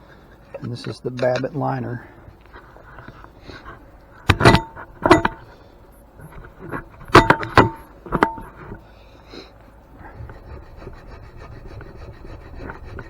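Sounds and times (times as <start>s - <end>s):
metal knocking against metal: 4.2s - 5.6s, 6.2s - 8.8s.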